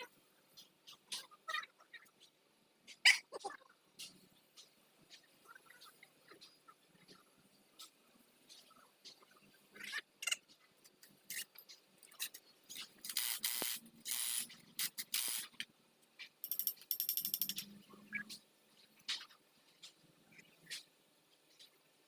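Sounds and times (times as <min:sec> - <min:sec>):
ratchet wrench clicking: 0:13.1 - 0:15.5, 0:16.4 - 0:17.7.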